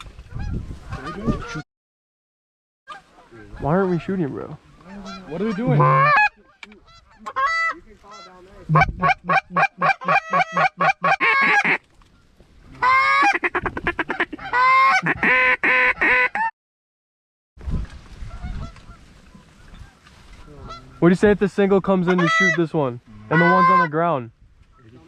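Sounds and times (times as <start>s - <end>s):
geese honking: 2.9s - 11.8s, 12.8s - 16.5s, 18.3s - 21.1s, 21.9s - 24.0s.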